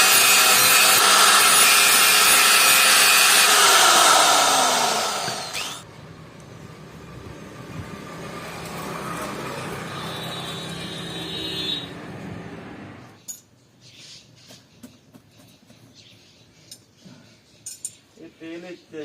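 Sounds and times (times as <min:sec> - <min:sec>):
workshop machine whining: 0:00.0 - 0:05.9.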